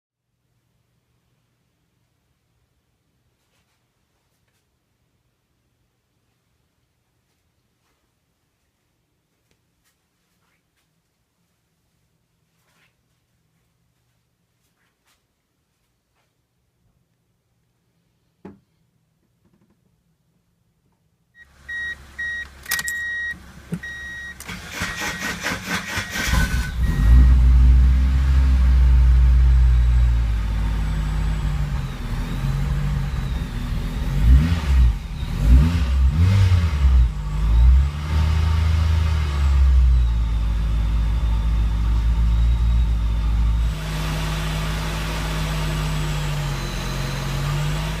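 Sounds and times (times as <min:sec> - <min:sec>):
short beeps: 0:21.4 - 0:25.2
engine revving and idling: 0:23.4 - 0:48.0.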